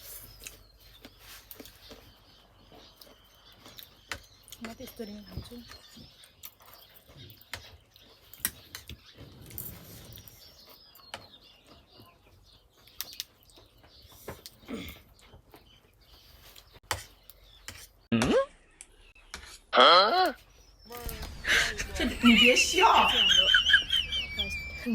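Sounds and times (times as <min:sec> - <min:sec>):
eating clicks and soft noises: 0:00.3 - 0:17.6.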